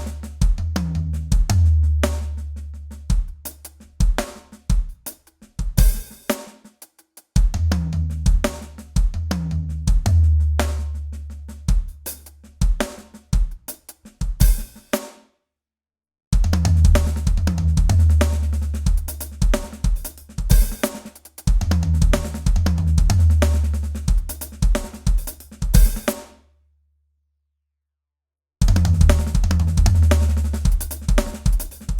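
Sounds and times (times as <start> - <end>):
drum kit fast fills: 3.0 - 6.7, 11.6 - 15.1, 16.4 - 26.3, 28.6 - 31.9.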